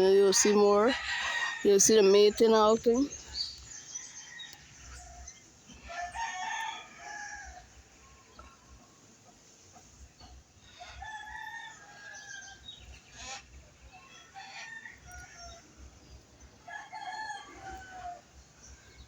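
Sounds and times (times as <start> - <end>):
rooster crowing: 0.6 - 2.3, 4.0 - 8.2, 10.7 - 12.6, 14.0 - 15.8, 16.6 - 18.4.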